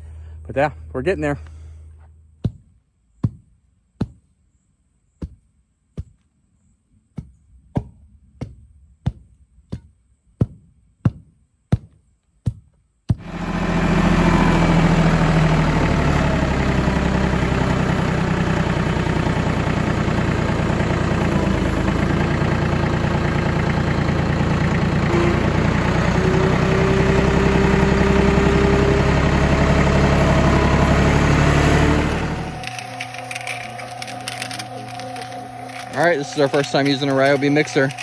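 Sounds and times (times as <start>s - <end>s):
concrete mixer running: 13.2s - 38.0s.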